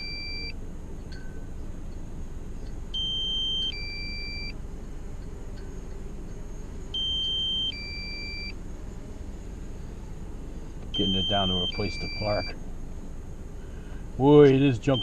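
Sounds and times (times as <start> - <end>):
two-tone electronic beep: 0.0 - 0.6, 11.0 - 12.5.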